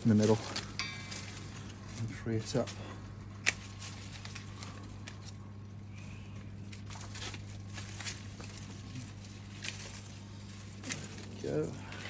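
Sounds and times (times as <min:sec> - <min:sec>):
steady low hum: 0:00.0 - 0:12.0
stems pulled through foliage: 0:00.0 - 0:12.0
garden shears snipping: 0:03.4 - 0:05.4.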